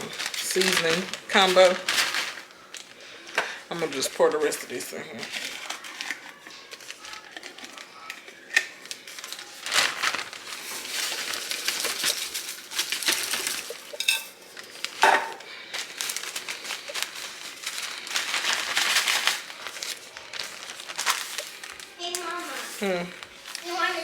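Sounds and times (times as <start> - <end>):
utensils and dishes clinking: 3.3 - 21.8.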